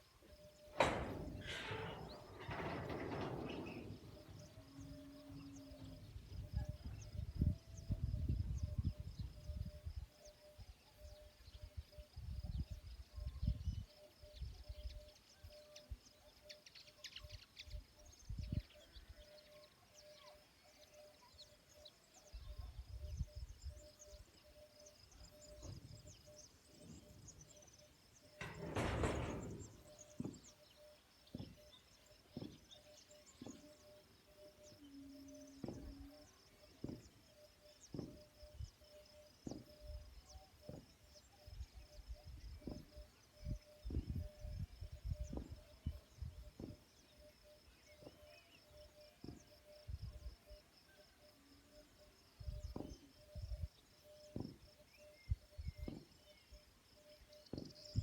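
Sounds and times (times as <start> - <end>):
low bumps: 0.6 - 9.4, 25.4 - 38.8.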